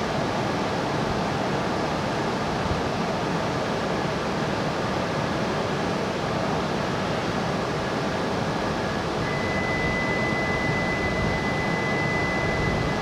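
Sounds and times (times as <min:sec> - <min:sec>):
train equipment whirring and hissing: 0:07.4 - 0:13.0
steady high-pitched tone: 0:08.5 - 0:13.0.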